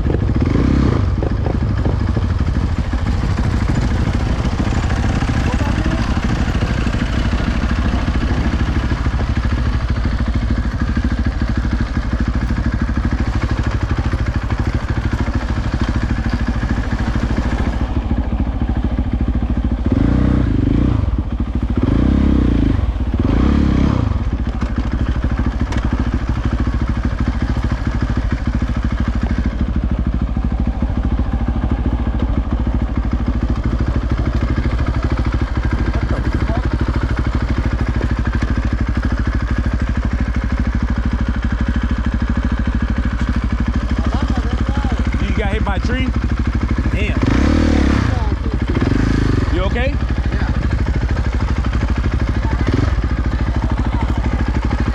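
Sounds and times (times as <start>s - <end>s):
dirt bike engine running: 0.0s - 54.9s.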